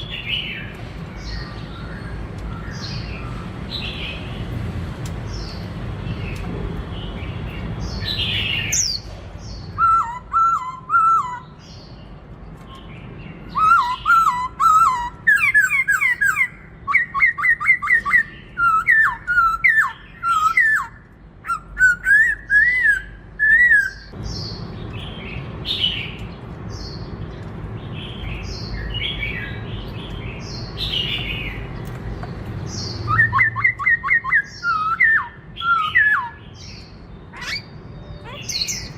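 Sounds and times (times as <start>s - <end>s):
harsh high bird calls: 5.3s - 27.1s, 32.5s - 38.9s
bird whistling song: 7.9s - 12.0s, 12.7s - 25.1s, 32.7s - 38.9s.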